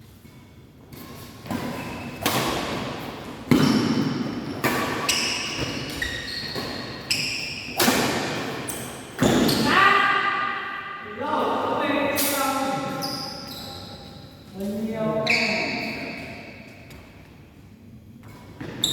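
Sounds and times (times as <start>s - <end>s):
rackets hitting shuttlecock: 1.4s - 7.0s, 7.6s - 9.6s.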